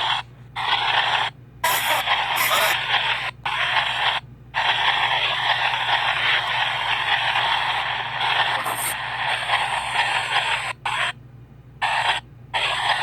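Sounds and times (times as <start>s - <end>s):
radio fragments: 1.6s - 10.7s
radio static: 1.6s - 10.7s.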